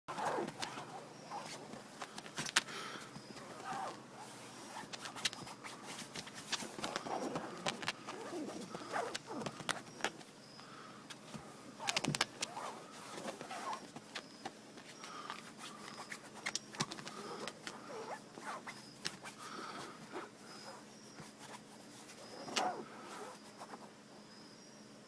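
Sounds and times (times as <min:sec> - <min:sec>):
small bird chirping: 0:00.1 - 0:01.8.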